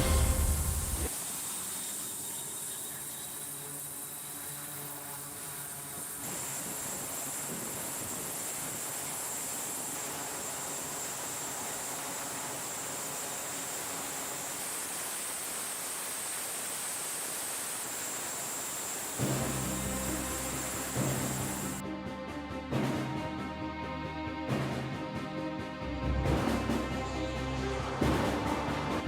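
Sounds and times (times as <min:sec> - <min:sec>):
high-pitched static hiss: 0:00.0 - 0:21.8.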